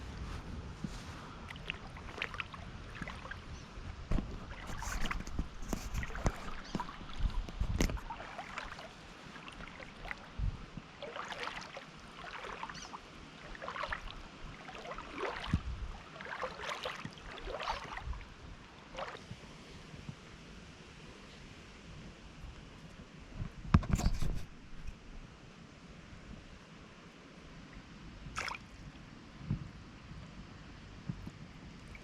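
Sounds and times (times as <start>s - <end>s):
wind buffeting microphone: 0.0s - 8.8s, 10.0s - 11.0s, 14.0s - 16.0s, 17.0s - 18.6s
water lapping and splashing: 0.0s - 20.3s, 27.6s - 29.2s, 31.7s - 32.0s.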